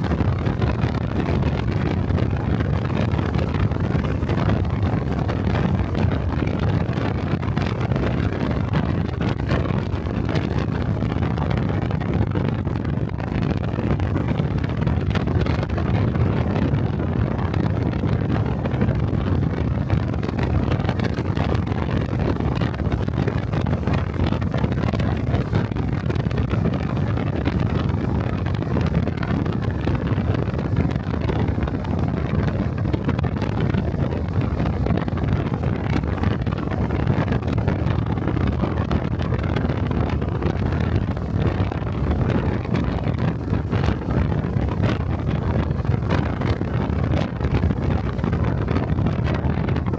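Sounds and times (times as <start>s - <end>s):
wind rushing over microphone: 0.0s - 49.9s.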